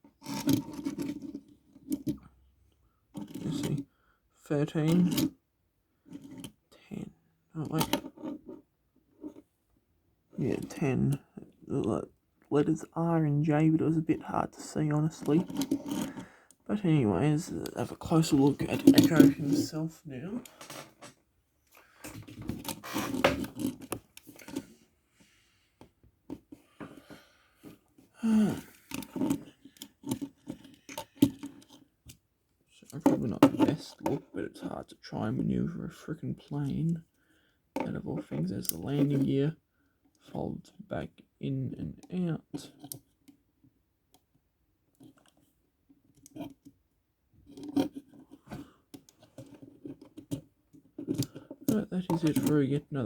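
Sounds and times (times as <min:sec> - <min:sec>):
metal toy handling clicks and knocks: 0:03.2 - 0:03.8, 0:04.9 - 0:05.3, 0:06.1 - 0:06.6, 0:15.0 - 0:16.2, 0:17.4 - 0:19.8, 0:22.4 - 0:24.7, 0:28.8 - 0:32.2, 0:46.1 - 0:46.8, 0:47.5 - 0:52.8.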